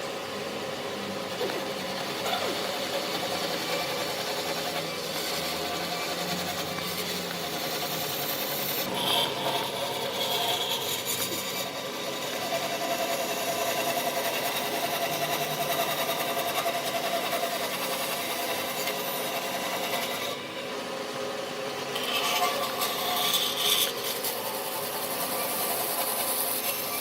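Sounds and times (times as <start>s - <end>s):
power tool whining on wood: 0.0s - 27.0s.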